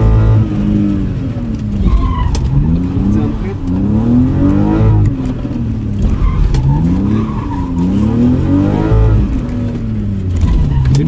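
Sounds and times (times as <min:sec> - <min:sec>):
car engine revving: 0:00.0 - 0:11.0
tyre squeal: 0:01.8 - 0:02.8, 0:06.0 - 0:09.3, 0:10.4 - 0:11.0.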